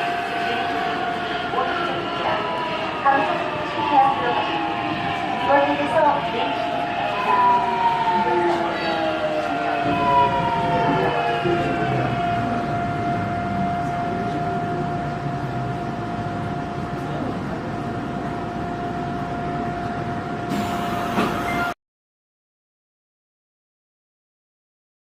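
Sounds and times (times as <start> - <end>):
rumble of running train: 0.0 - 21.8
train motors whining: 19.8 - 21.8.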